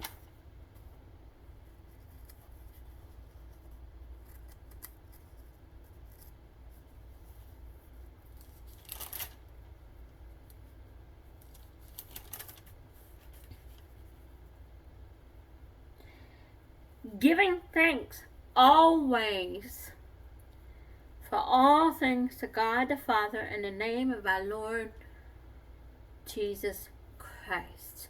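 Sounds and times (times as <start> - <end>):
low steady hum: 0.0 - 28.0
thin pages turning: 1.9 - 6.4, 8.3 - 9.5, 11.4 - 14.2.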